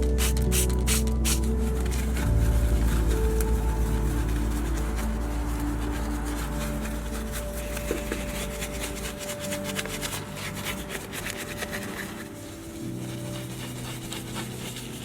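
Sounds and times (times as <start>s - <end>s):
brush scrubbing car surface: 0.0s - 15.0s.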